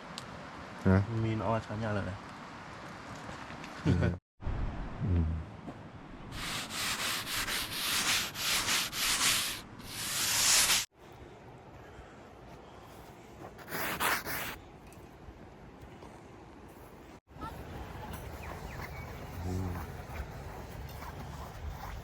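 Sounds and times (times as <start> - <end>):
rough scraping strokes: 6.3 - 10.9.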